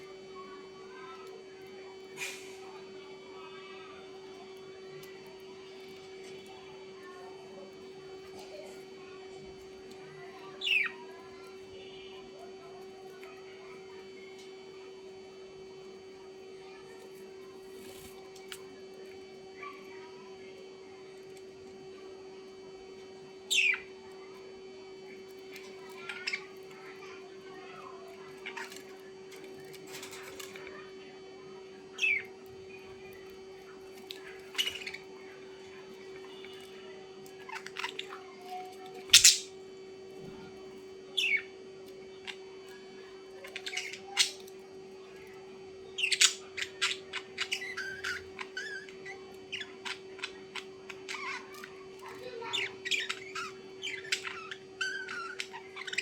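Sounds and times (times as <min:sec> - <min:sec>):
birds chirping and squawking: 0:09.4 - 0:11.8, 0:23.4 - 0:24.4, 0:25.1 - 0:39.6, 0:40.2 - 0:56.0.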